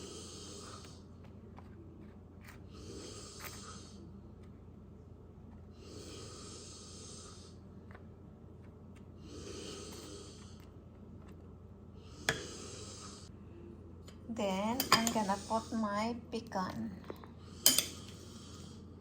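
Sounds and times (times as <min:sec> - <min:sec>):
slow breathing: 0:00.0 - 0:01.2, 0:05.7 - 0:07.7, 0:09.2 - 0:10.8, 0:11.9 - 0:13.4, 0:17.2 - 0:19.0.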